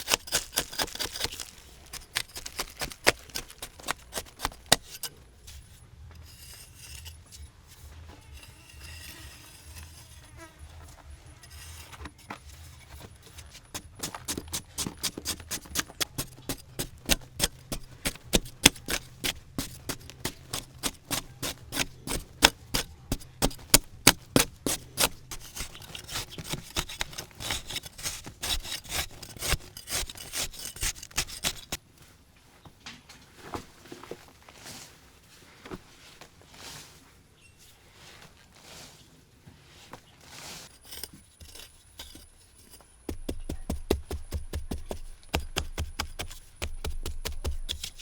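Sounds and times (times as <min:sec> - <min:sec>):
hand saw cutting wood: 0:00.0 - 0:05.2, 0:13.7 - 0:31.8, 0:43.1 - 0:48.0.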